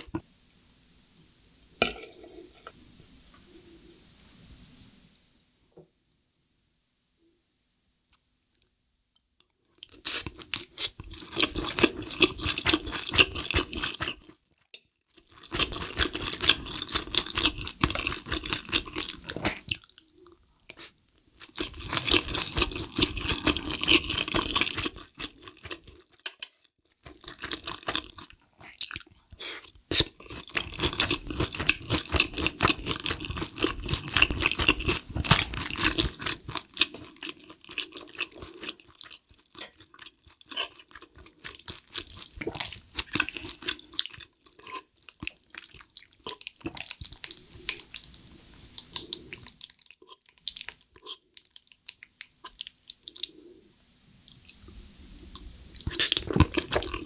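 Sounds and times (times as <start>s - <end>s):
chewing with wet mouth sounds: 9.8s - 26.2s, 26.8s - 53.5s, 54.3s - 57.0s.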